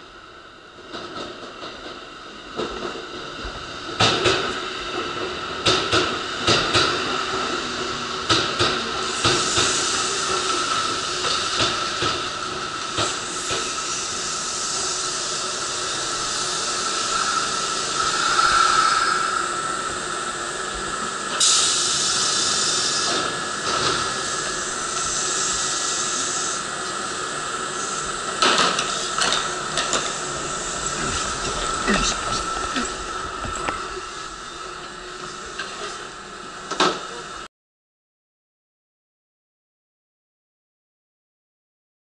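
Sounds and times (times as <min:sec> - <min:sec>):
train running hiss: 0:00.2 - 0:37.5
high whine: 0:15.8 - 0:21.9, 0:27.8 - 0:35.8.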